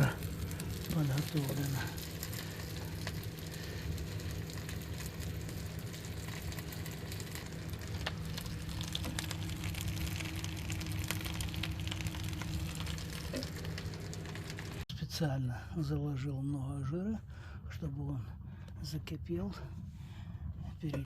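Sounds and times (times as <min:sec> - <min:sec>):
fat sizzling and crackling: 0:00.0 - 0:14.9
low hum: 0:00.0 - 0:21.0.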